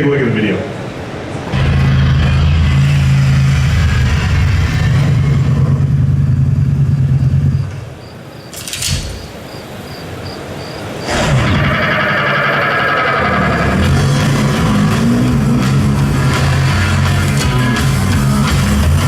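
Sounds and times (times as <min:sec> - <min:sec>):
motorcycle engine over speakers: 0:01.5 - 0:09.3, 0:11.2 - 0:19.0.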